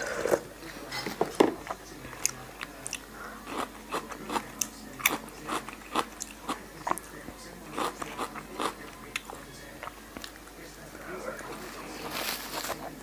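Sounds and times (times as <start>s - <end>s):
crunchy chewing: 1.6s - 10.6s.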